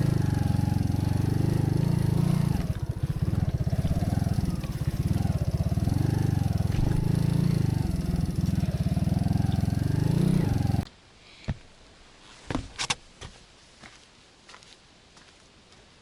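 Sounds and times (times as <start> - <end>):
small engine running: 0.0 - 10.8.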